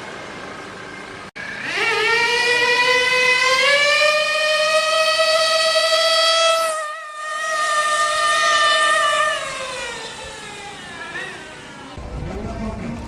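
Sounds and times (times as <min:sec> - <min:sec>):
electric motor whining: 0:07.2 - 0:12.0.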